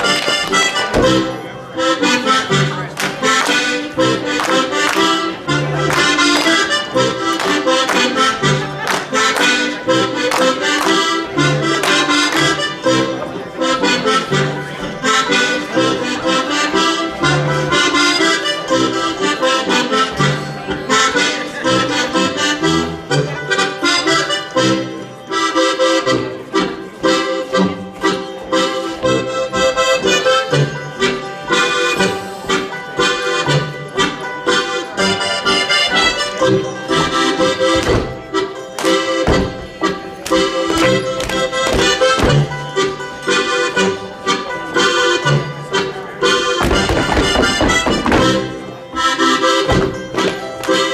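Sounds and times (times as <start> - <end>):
accordion folk dance tune: 0.0 - 50.9
dancers slapping and stomping: 46.6 - 48.4.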